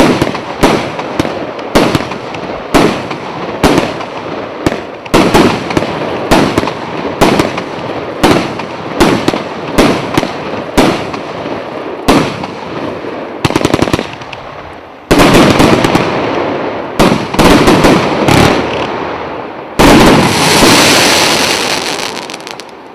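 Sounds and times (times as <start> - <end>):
firework shots banging: 0.0 - 11.4, 12.0 - 14.5, 15.1 - 19.0.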